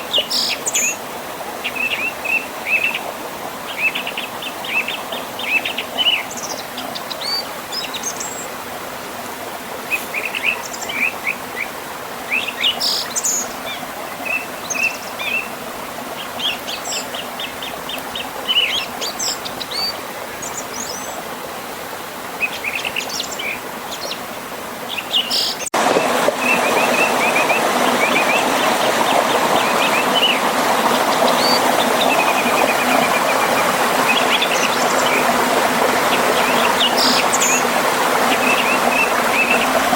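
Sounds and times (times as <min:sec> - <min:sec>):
flowing river water: 0:00.0 - 0:39.9
songbirds chirping and trilling: 0:09.9 - 0:21.3.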